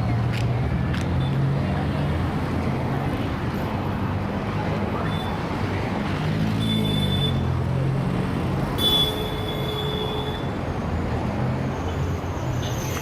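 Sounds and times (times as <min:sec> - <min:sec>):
traffic engines rumbling: 0:00.0 - 0:13.0
high squeal: 0:11.7 - 0:13.0.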